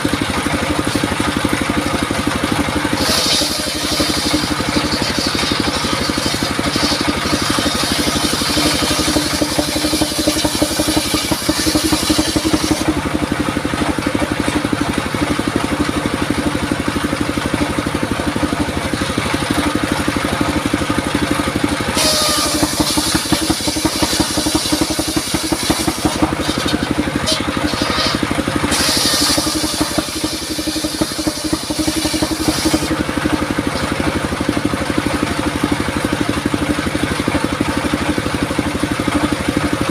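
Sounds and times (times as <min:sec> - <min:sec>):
circular saw motor droning: 0:00.8 - 0:15.0, 0:15.8 - 0:34.7
saw blade hissing through wood: 0:02.8 - 0:13.1, 0:21.9 - 0:33.7.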